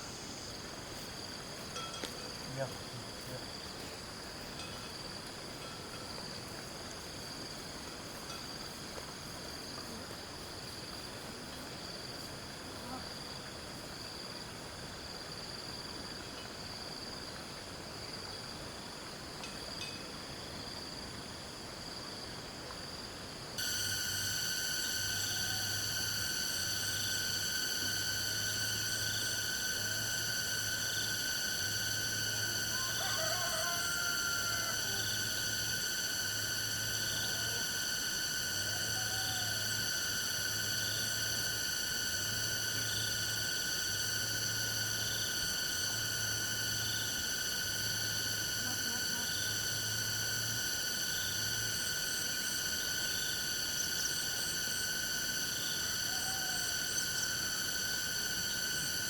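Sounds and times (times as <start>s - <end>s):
insects chirring: 0.0s - 59.0s
low pulsing hum: 23.6s - 33.1s, 33.8s - 54.6s.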